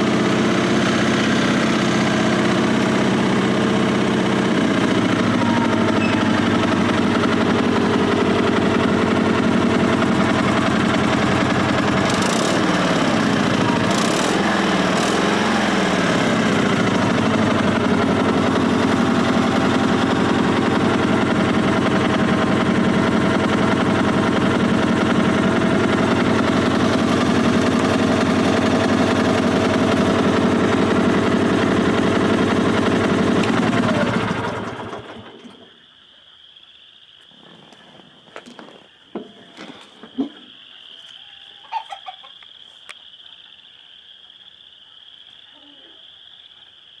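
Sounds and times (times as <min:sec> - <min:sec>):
tractor engine running: 0:00.0 - 0:35.6.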